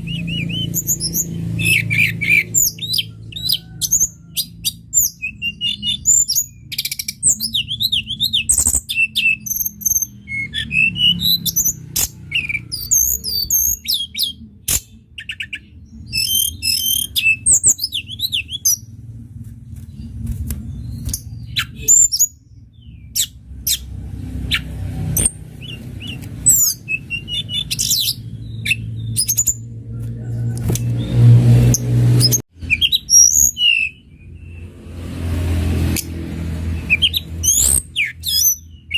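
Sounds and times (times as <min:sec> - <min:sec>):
bird chirping and trilling: 0:00.0 - 0:19.0, 0:19.8 - 0:38.9
low rumble: 0:18.2 - 0:21.8.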